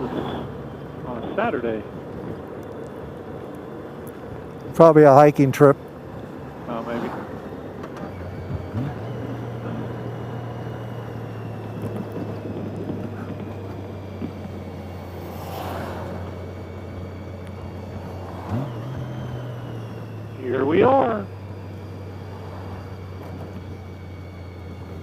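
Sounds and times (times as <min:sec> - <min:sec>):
motorcycle engine running: 0:00.0 - 0:25.0
road and wind noise: 0:00.0 - 0:25.0
rush of noise: 0:14.8 - 0:23.5.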